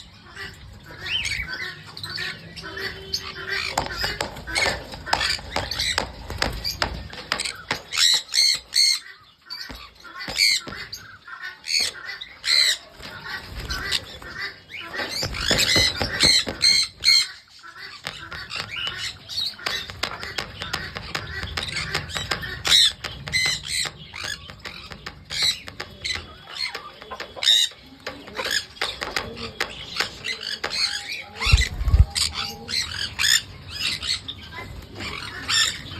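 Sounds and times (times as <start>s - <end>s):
parrot squawking: 0.9s - 28.9s.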